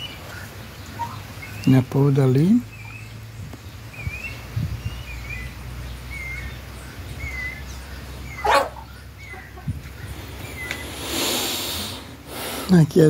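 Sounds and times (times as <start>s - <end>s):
bird chirping: 0.0s - 12.2s
loud animal call: 6.1s - 12.5s.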